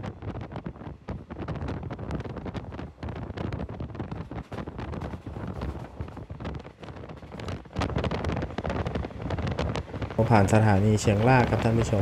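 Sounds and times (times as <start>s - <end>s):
wind buffeting microphone: 0.0s - 12.0s
train wheels rumbling on track: 0.1s - 12.0s
knocks and rattles: 2.6s - 9.0s.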